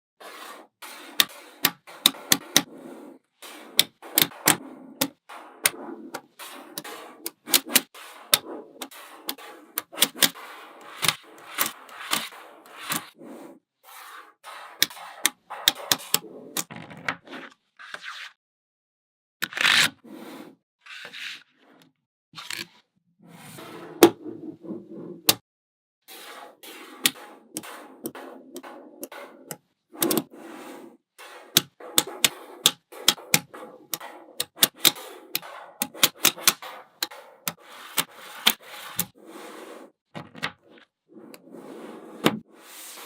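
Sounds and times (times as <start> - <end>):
magnetic balls scraping: 0.2 - 16.7, 23.3 - 25.4, 26.1 - 40.0.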